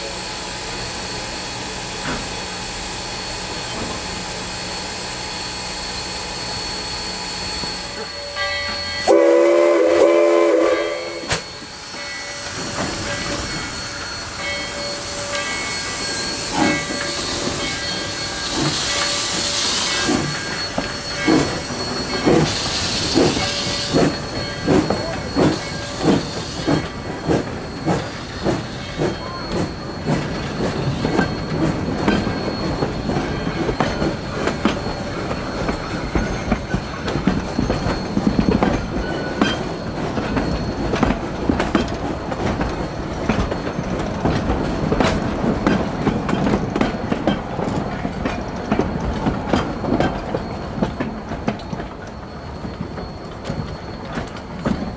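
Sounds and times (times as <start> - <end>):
steam hiss: 0.0 - 41.0
steam locomotive exhaust chuffs: 0.0 - 54.9
train wheels clicking over rail joints: 9.9 - 54.9.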